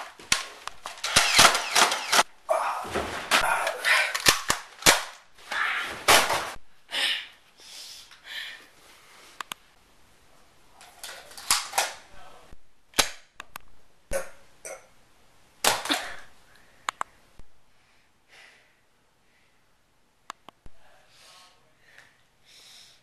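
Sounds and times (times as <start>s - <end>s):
toy guns firing: 0.0s - 2.3s, 4.1s - 5.2s.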